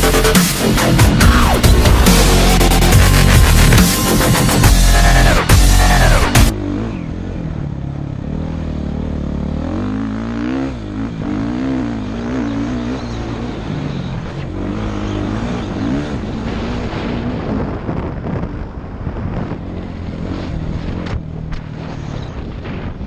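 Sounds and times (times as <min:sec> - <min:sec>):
dirt bike engine revving: 0:00.0 - 0:18.4.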